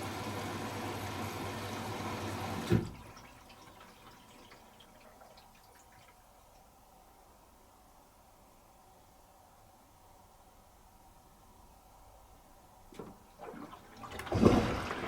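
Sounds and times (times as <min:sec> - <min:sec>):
washing machine humming: 0:00.0 - 0:07.1, 0:12.7 - 0:15.0
water dripping and trickling: 0:02.7 - 0:06.8.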